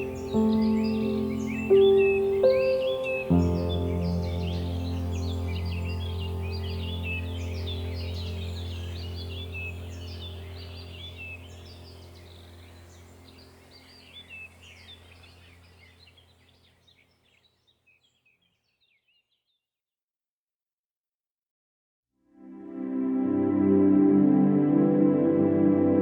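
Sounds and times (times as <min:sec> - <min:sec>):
steady low hum: 0:00.0 - 0:17.2
songbirds chirping: 0:00.0 - 0:19.7.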